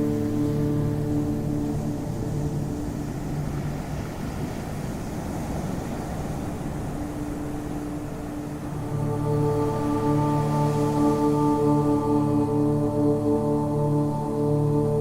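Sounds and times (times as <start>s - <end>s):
ocean waves washing: 0.0s - 15.0s
singing bowl music tones: 0.0s - 15.0s.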